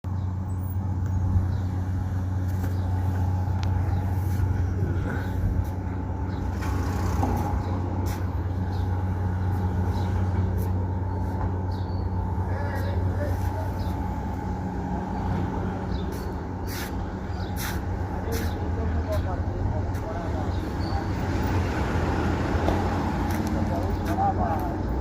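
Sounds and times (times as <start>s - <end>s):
truck engine humming: 0.0s - 25.0s.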